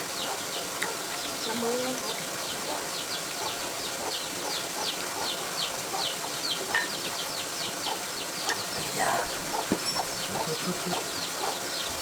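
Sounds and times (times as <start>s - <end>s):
outdoor background noise: 0.0s - 12.0s
bird high falling chirps: 9.5s - 10.5s.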